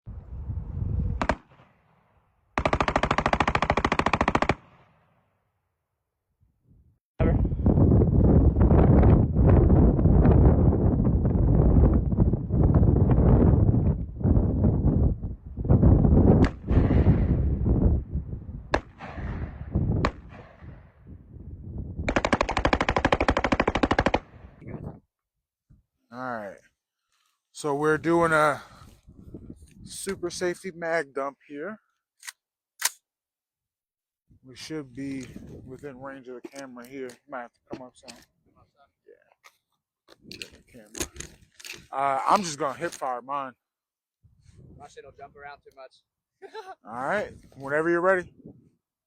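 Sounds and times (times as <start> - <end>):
rapid gunfire: 1.2 - 1.6, 2.6 - 5.0, 22.0 - 24.6
single gunshots: 1.2 - 1.8, 18.7 - 20.7.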